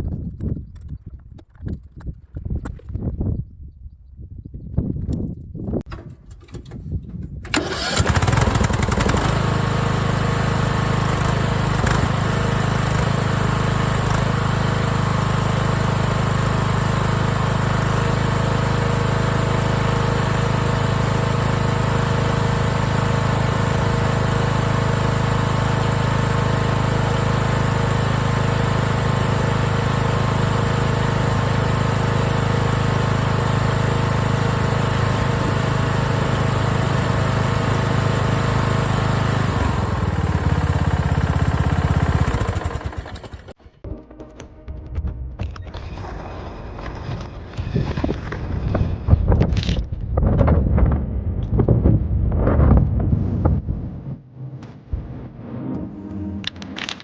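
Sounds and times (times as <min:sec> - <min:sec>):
lawn tractor engine running: 0:05.9 - 0:43.6.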